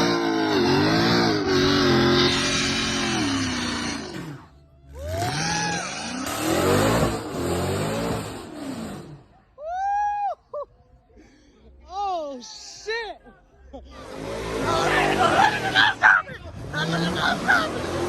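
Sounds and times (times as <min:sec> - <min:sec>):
car engine revving and accelerating: 0:00.0 - 0:09.4, 0:14.0 - 0:18.0.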